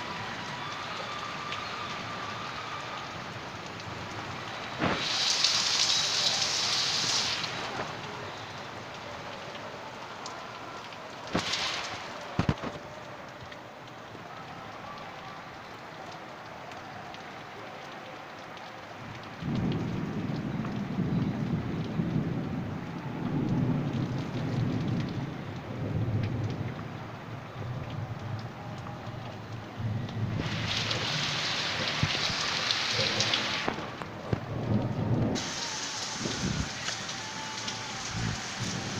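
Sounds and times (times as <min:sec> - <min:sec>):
heavy rain falling: 0:00.0 - 0:38.9
thunder rumbling: 0:19.3 - 0:28.5, 0:29.4 - 0:38.9
drips: 0:23.3 - 0:38.9.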